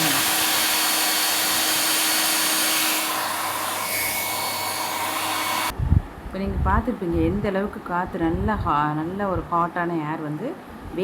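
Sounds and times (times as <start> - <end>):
hair dryer blowing air: 0.0 - 5.7.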